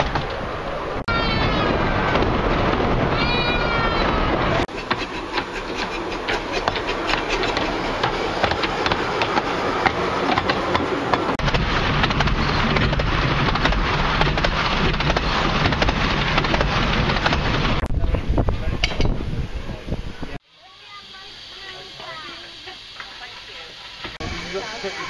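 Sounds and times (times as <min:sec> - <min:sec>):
wheels clicking over rails: 0:00.0 - 0:18.0
low rumble of moving carriage: 0:00.0 - 0:20.4.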